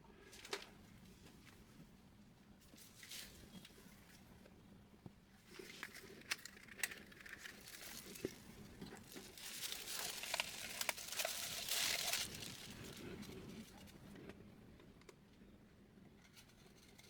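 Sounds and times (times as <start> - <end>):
rustling and crinkling: 0.2 - 1.9, 2.7 - 14.4.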